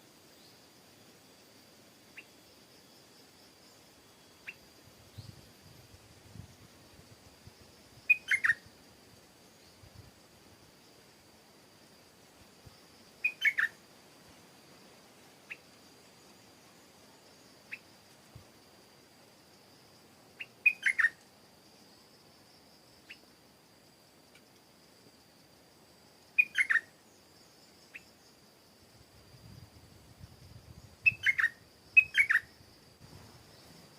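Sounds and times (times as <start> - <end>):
steady high-pitched whine: 0.0 - 24.2
bird singing: 8.0 - 8.7, 13.2 - 13.8, 20.4 - 21.2, 26.3 - 27.2, 31.0 - 32.5.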